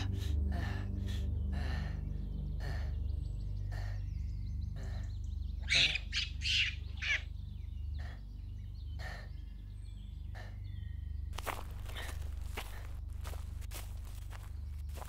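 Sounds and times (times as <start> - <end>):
man breathing heavily: 0.0 - 6.0, 7.4 - 15.0
steady low drone: 0.0 - 15.0
bird squawking: 3.6 - 15.0.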